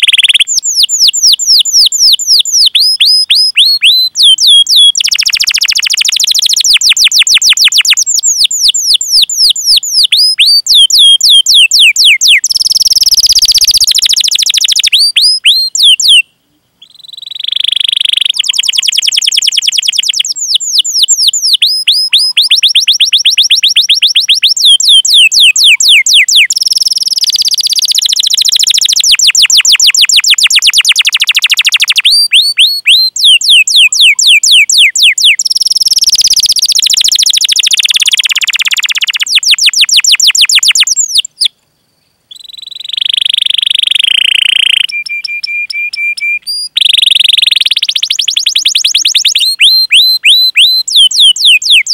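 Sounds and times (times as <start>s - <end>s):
canary singing trills: 0.0s - 41.6s, 42.3s - 51.9s.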